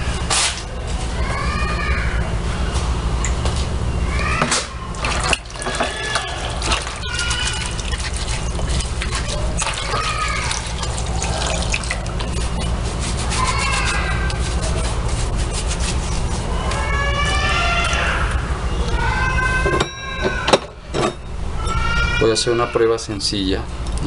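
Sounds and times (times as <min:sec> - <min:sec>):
steady low hum: 0:00.0 - 0:24.0
liquid splashing and dripping: 0:04.6 - 0:14.6
small wet clicks: 0:05.0 - 0:12.8.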